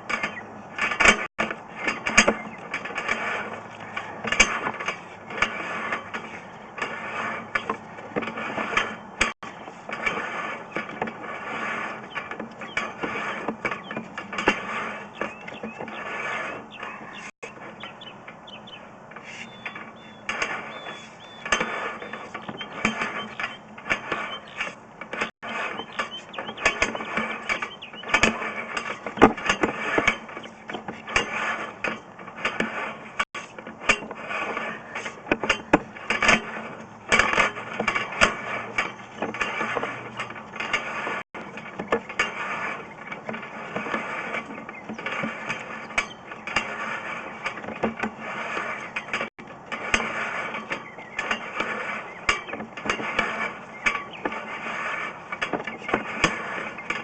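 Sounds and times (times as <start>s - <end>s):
cable reel clicking and rattling: 0.0s - 57.0s.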